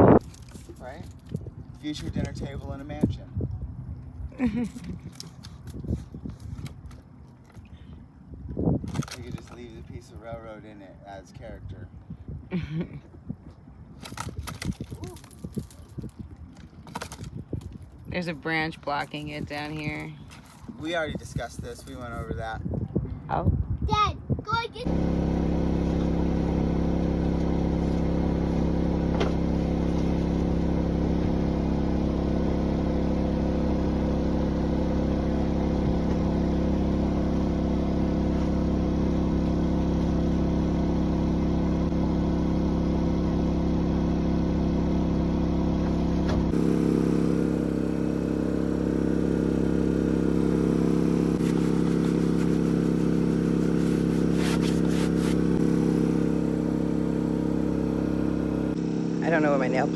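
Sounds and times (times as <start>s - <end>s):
steady engine drone: 14.0s - 22.2s, 24.8s - 59.9s.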